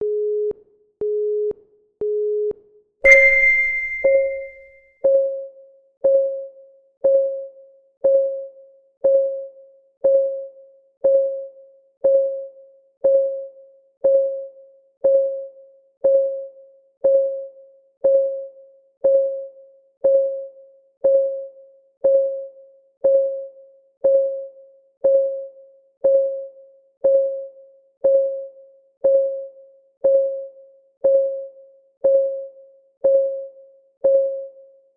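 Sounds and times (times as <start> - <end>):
bell-like chime: 3.1 - 4.6
short electronic beeps: 3.1 - 4.6.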